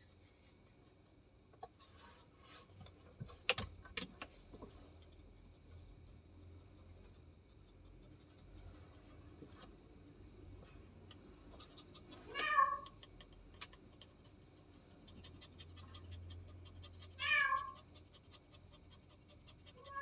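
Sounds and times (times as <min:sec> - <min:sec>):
cat meowing: 0:12.3 - 0:13.0, 0:17.1 - 0:17.9, 0:19.7 - 0:20.0.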